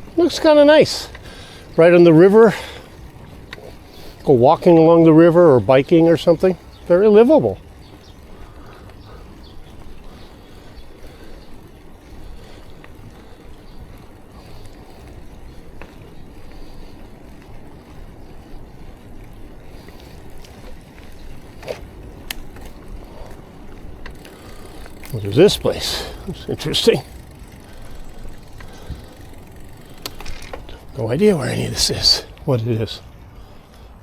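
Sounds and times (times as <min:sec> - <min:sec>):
bicycle tyre noise: 0:00.0 - 0:34.0.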